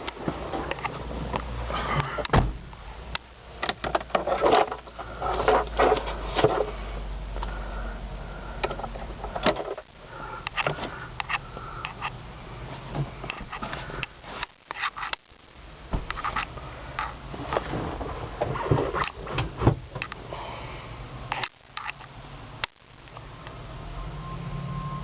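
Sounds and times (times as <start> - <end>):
steady low rumble: 4.8 - 24.4.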